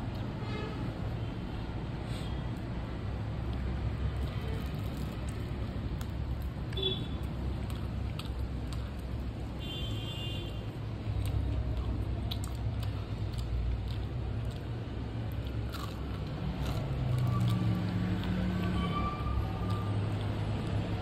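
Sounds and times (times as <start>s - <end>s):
chewing crispy fried chicken: 3.3s - 9.7s, 10.6s - 18.8s.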